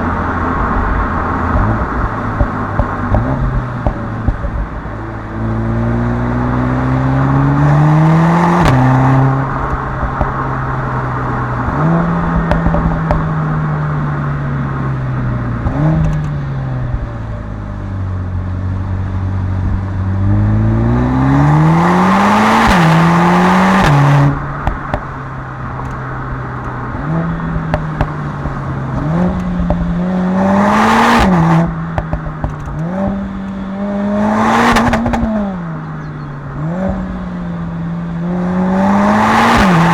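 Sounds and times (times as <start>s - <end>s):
car engine revving through upshifts: 0.0s - 17.1s, 19.6s - 39.9s.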